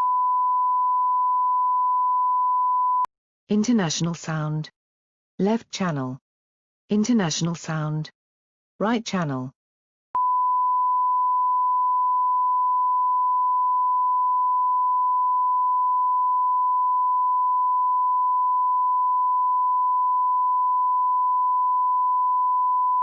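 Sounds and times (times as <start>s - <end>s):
steady sine-wave test tone: 0.0s - 3.1s, 10.2s - 23.0s.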